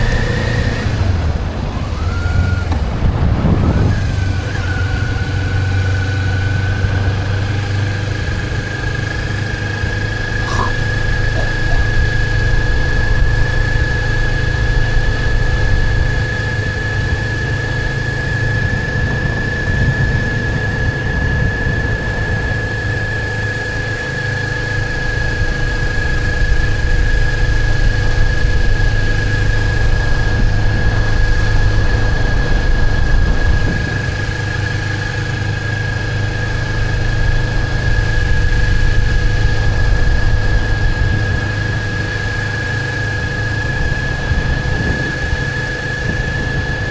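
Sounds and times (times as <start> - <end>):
motorcycle engine rumbling: 0.0 - 17.0.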